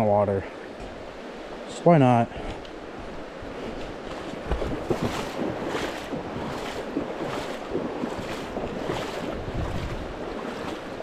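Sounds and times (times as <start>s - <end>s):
rushing water: 0.0s - 11.0s
footsteps sloshing through river: 0.5s - 11.0s
wind buffeting microphone: 2.4s - 11.0s.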